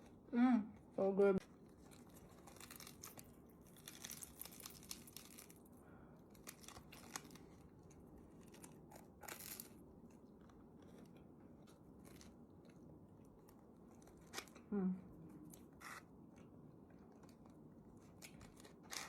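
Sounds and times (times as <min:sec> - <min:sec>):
snack wrapper crinkling: 0:01.5 - 0:10.3, 0:10.9 - 0:14.7, 0:17.0 - 0:19.0.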